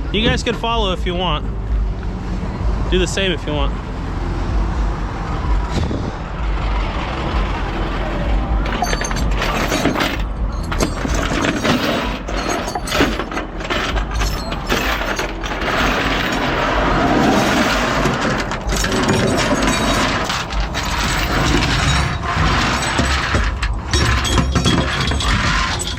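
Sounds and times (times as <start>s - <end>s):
vehicle engine rumbling: 0.0s - 25.9s
clanks and rattles: 5.4s - 25.9s.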